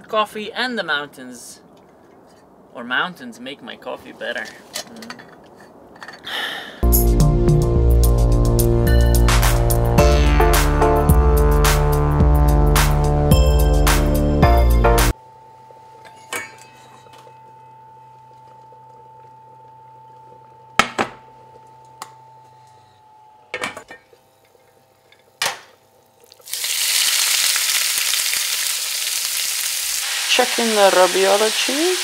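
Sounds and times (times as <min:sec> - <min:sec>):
fish sizzling in a frying pan: 0:26.3 - 0:32.0.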